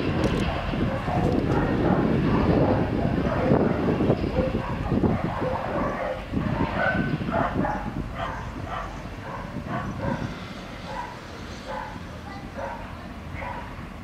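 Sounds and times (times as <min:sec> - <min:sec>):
dog barking: 0:00.4 - 0:10.3, 0:10.9 - 0:12.0, 0:12.6 - 0:13.7.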